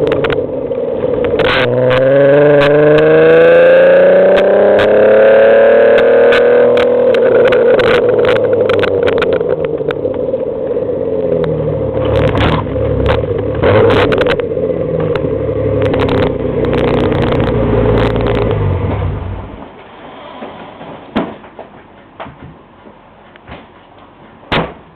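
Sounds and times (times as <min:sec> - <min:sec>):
sharp clicks and rattles: 0:00.0 - 0:00.5, 0:05.9 - 0:10.5, 0:11.4 - 0:18.6
car engine accelerating: 0:00.0 - 0:19.8
knocks: 0:20.4 - 0:24.9.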